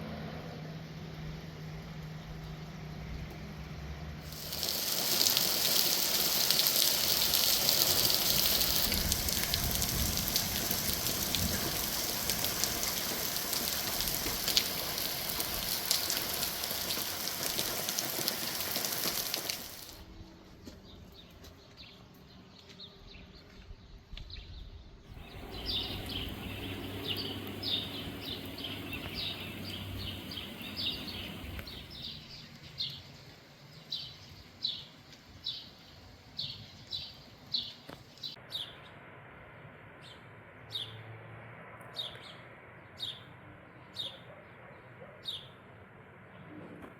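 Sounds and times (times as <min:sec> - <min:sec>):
small birds chirping: 0:04.3 - 0:20.0, 0:20.6 - 0:38.8.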